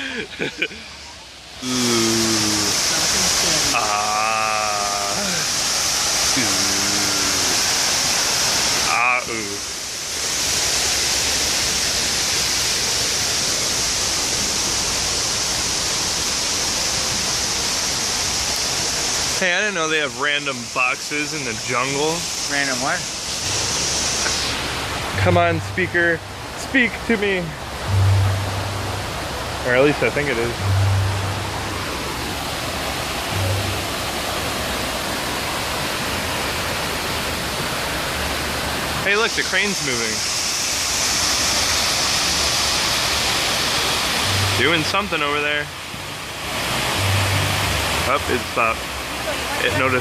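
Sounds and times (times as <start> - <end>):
waterfall rushing: 0.0 - 50.0
low hum: 27.5 - 35.1
faint music: 27.8 - 32.0.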